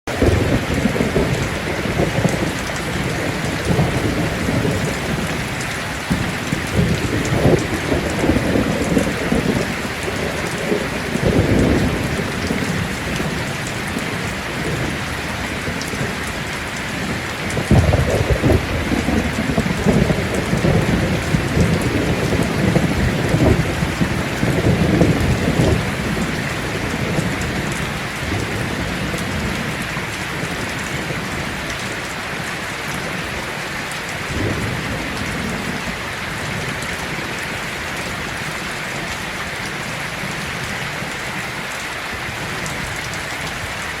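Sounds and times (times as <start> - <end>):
heavy rain on a tin roof: 0.0 - 44.0
thunder rumbling: 0.1 - 33.5, 34.2 - 41.3.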